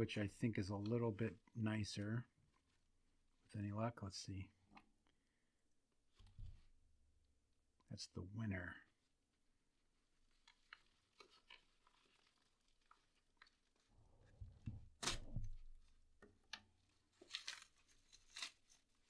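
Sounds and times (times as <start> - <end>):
package crinkling: 10.3 - 13.9, 17.1 - 19.0
package tearing rip: 15.0 - 15.4, 17.2 - 18.9.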